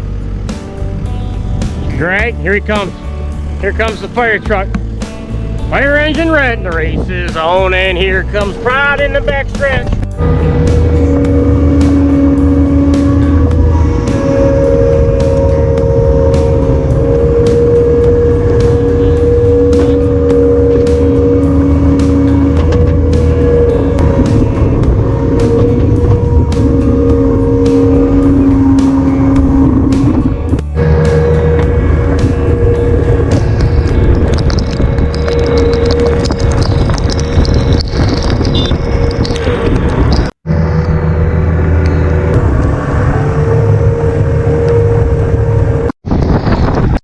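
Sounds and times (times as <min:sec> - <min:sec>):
vehicle engine running: 0:00.0 - 0:46.0
storm wind: 0:00.0 - 0:47.0
rain noise: 0:10.1 - 0:40.3.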